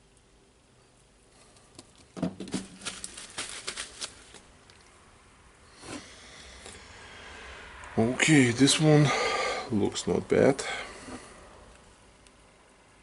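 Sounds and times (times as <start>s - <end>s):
short rustle: 2.5s - 4.5s.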